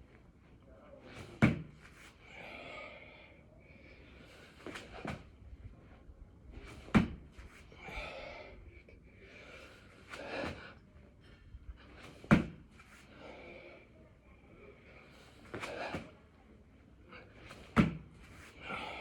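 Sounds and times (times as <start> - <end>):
man breathing heavily: 2.1 - 5.4, 7.6 - 16.2, 18.5 - 19.0
body thudding on floor: 6.9 - 7.2, 12.2 - 12.6, 17.7 - 18.1.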